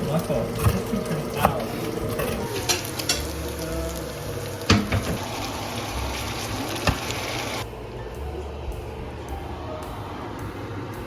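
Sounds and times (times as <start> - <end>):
food sizzling in a frying pan: 0.0 - 7.6.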